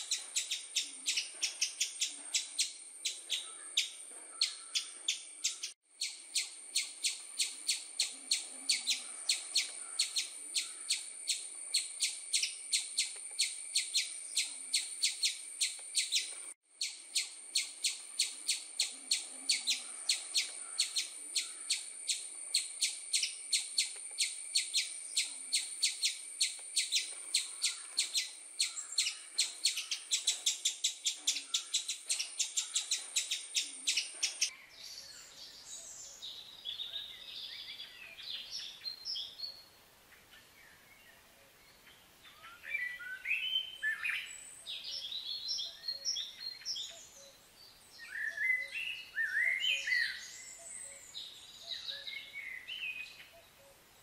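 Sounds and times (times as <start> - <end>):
bird chirping rapidly: 0.0 - 34.5
soft scattered bird calls: 0.0 - 54.0.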